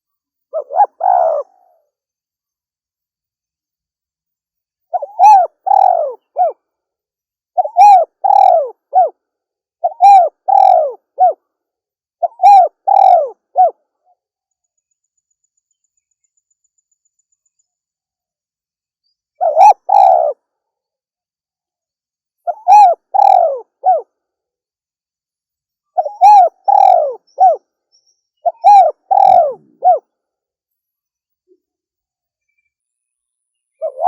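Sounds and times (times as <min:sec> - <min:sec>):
dove cooing: 0:00.5 - 0:01.8, 0:04.9 - 0:06.6, 0:07.6 - 0:09.2, 0:09.8 - 0:11.4, 0:12.2 - 0:13.8, 0:19.4 - 0:20.4, 0:22.5 - 0:24.1, 0:26.0 - 0:27.6, 0:28.4 - 0:30.0, 0:33.8 - 0:34.0.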